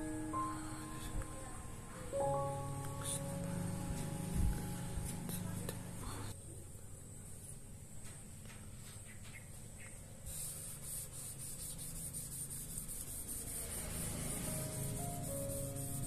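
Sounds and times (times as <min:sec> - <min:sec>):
faint piano music: 0:00.0 - 0:06.4, 0:12.2 - 0:16.0.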